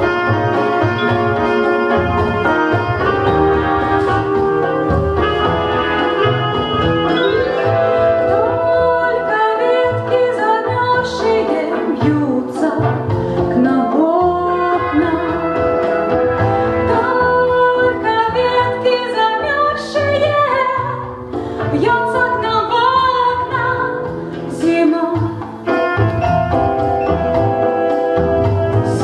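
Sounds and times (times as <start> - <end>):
instrumental accompaniment with bass: 0.0 - 29.0.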